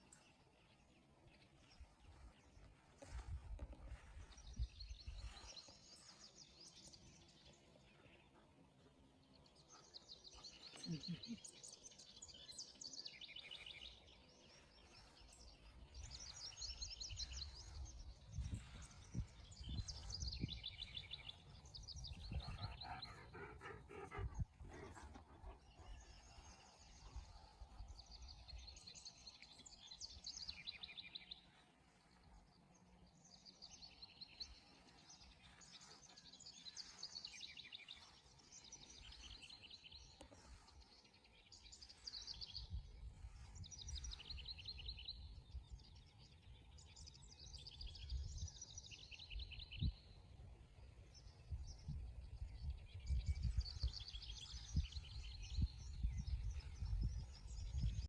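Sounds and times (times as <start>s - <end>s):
songbirds trilling: 3.8s - 50.2s.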